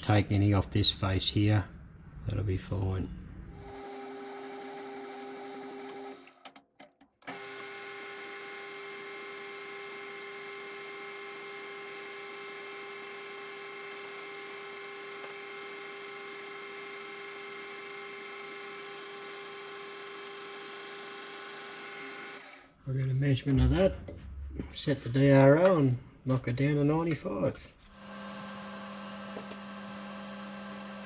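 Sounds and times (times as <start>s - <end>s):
metal lathe motor hum: 7.3s - 22.7s, 27.9s - 31.0s.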